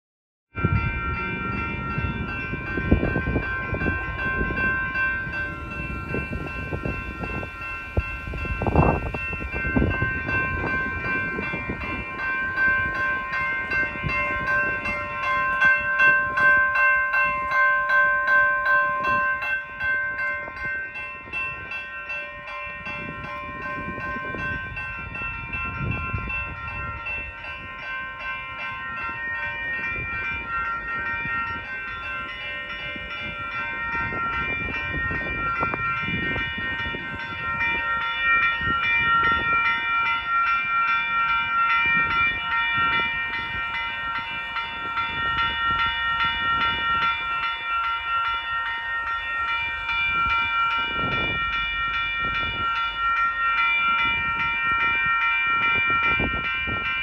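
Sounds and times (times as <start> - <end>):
crossing warning bell ringing: 0.5 - 57.0
train wheels rumbling on rails: 0.6 - 57.0.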